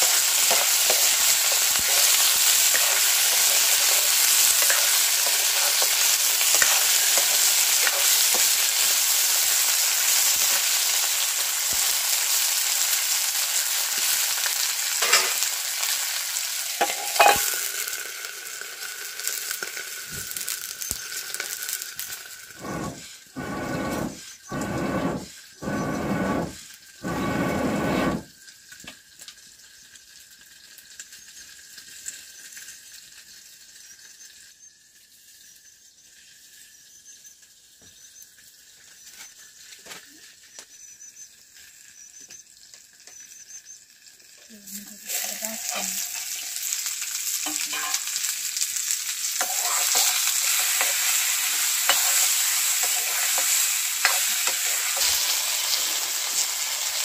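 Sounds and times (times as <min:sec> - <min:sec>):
metal spatula scraping wok: 0:00.0 - 0:10.8, 0:15.0 - 0:15.9, 0:16.7 - 0:28.3, 0:44.9 - 0:46.7, 0:47.4 - 0:48.3, 0:49.4 - 0:57.0
potatoes sizzling in a wok: 0:00.0 - 0:57.0.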